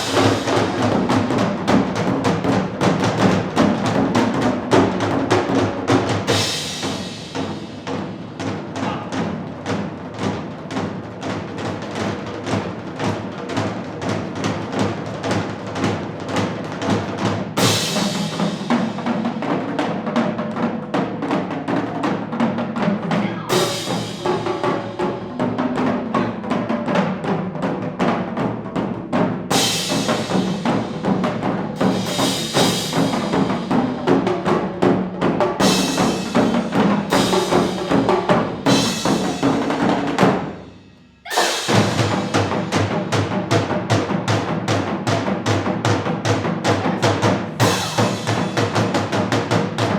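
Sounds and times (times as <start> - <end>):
cymbal crashes: 0.0 - 1.4, 6.3 - 8.2, 31.8 - 34.2, 35.6 - 42.9, 47.6 - 49.1
fast drumming: 0.0 - 49.9.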